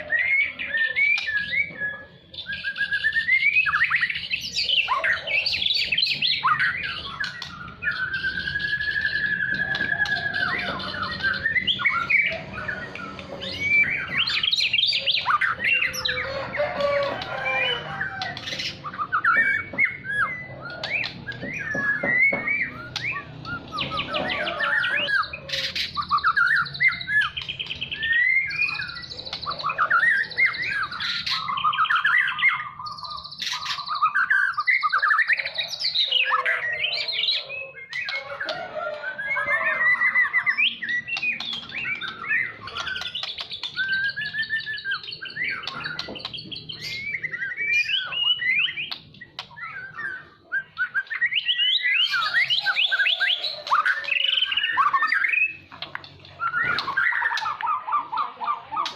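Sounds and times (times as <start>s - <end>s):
songbird singing varied song: 17.7s - 58.9s.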